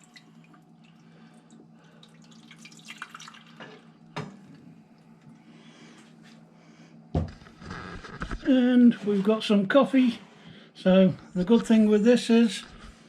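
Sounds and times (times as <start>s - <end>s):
water trickling and dripping: 0.0s - 3.6s.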